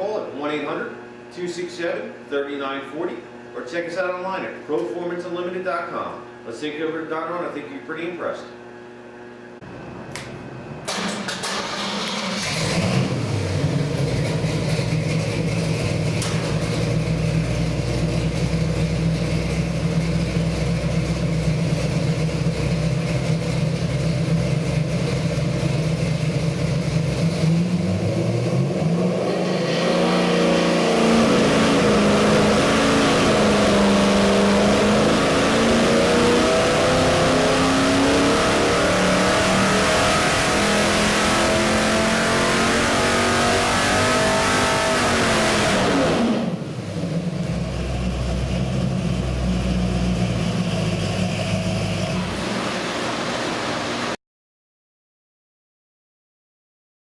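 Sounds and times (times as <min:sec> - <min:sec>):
car engine running and revving: 0:12.3 - 0:53.7.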